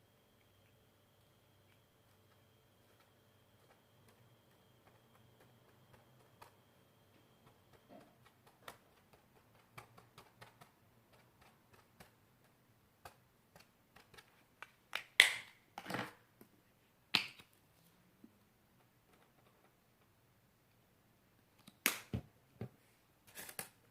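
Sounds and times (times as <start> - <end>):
sticky clicks of hands working slime: 3.0 - 6.7, 7.3 - 15.6, 17.1 - 17.6, 21.5 - 22.2
sharp slime pops: 15.0 - 15.6, 21.7 - 22.2.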